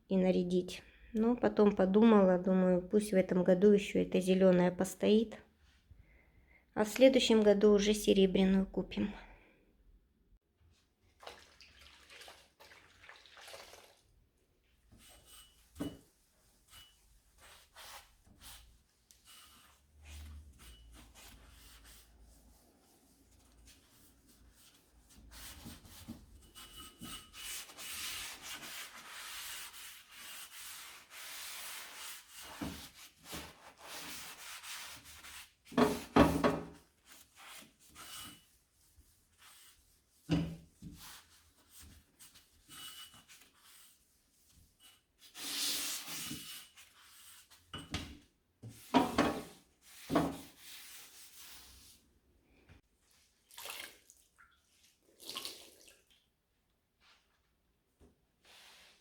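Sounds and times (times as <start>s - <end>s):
hand scrubbing hard surface: 14.9s - 36.2s, 36.8s - 47.6s, 48.8s - 52.0s
objects knocking and clunking: 35.7s - 36.8s, 47.7s - 50.4s.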